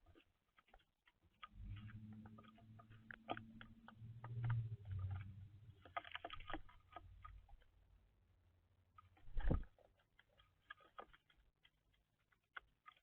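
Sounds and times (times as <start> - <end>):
low hum: 1.5 - 6.9.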